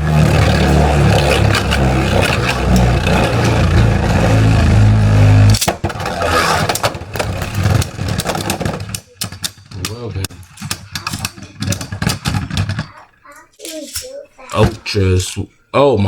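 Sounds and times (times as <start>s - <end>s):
spinning tops whirring and grinding: 0.0s - 14.9s
plastic clicks and clatter: 5.5s - 14.9s.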